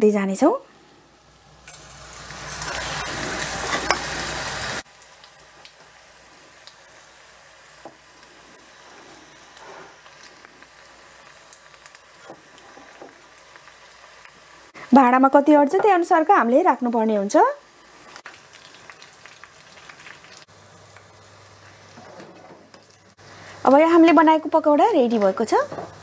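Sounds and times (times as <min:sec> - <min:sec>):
food frying in hot oil: 0:01.2 - 0:26.0
oil popping and crackling: 0:01.6 - 0:07.2, 0:07.8 - 0:14.7, 0:18.1 - 0:21.8.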